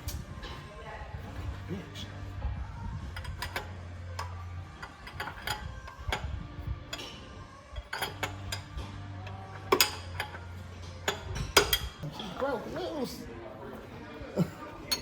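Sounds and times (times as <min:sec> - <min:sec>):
steady low hum: 0:00.0 - 0:12.1
socket wrench clicking: 0:03.2 - 0:06.3, 0:07.7 - 0:12.0.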